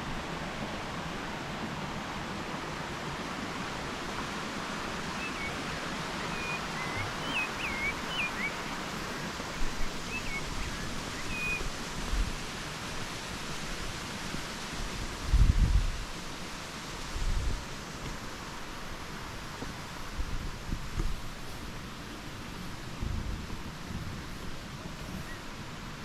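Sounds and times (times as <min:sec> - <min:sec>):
waterfall rushing: 0:00.0 - 0:15.2
small bird chirping: 0:05.2 - 0:11.7.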